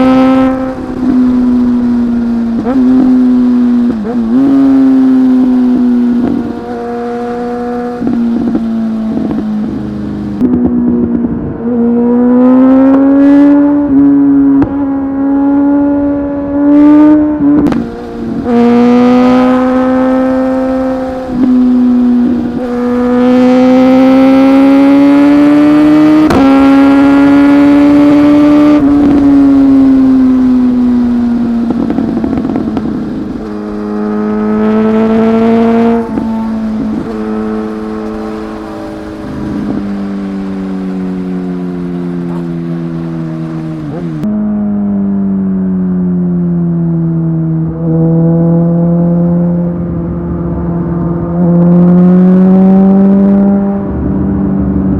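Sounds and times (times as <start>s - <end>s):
motorcycle engine revving: 0.0s - 46.0s, 46.6s - 54.9s.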